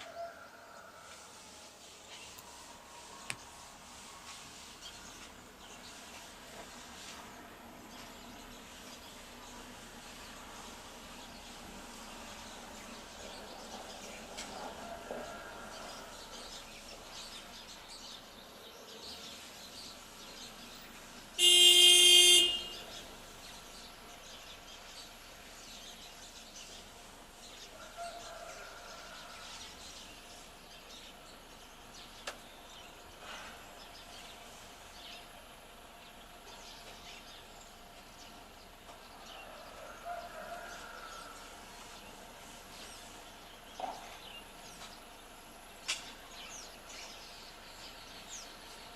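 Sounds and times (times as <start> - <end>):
outdoor ambience: 0.0 - 48.9
birds chirping: 7.9 - 48.9
car horn honking: 21.4 - 22.9.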